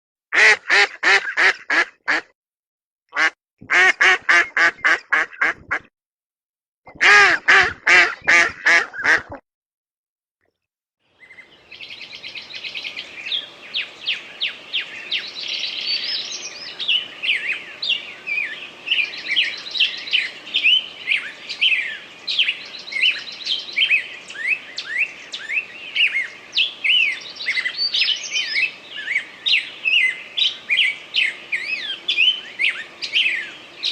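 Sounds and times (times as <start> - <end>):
duck quacking: 0.3 - 2.3, 3.1 - 5.9, 6.9 - 9.4
small birds chirping: 11.1 - 33.9.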